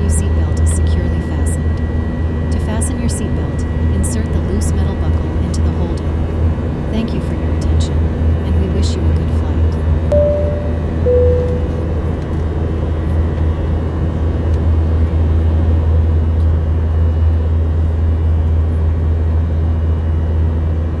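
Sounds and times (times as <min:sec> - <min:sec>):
jet cabin drone: 0:00.0 - 0:21.0.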